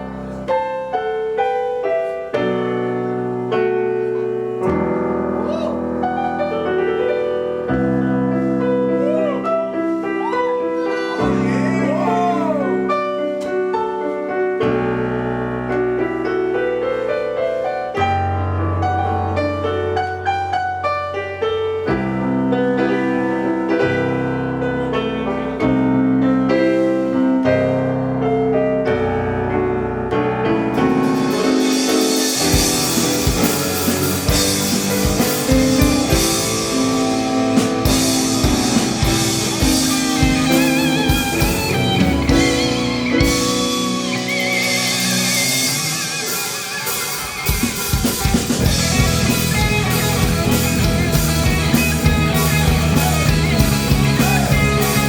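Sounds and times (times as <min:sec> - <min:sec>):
drum kit: 0:00.0 - 0:14.0, 0:29.8 - 0:55.0
electric keyboard chords: 0:00.0 - 0:55.0
guitar: 0:00.0 - 0:55.0
cymbals: 0:30.8 - 0:55.0.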